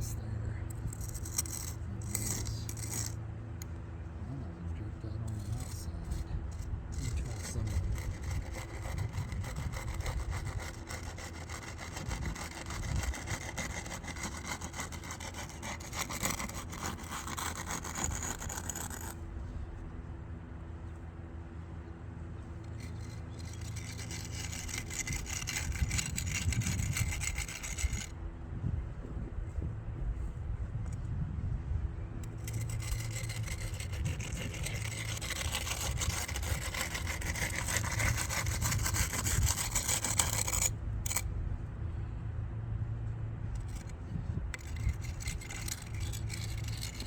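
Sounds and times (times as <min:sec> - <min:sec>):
hand tool scraping wet concrete: 0:00.9 - 0:03.2, 0:05.3 - 0:19.2, 0:22.7 - 0:28.1, 0:32.2 - 0:41.2, 0:43.6 - 0:47.0.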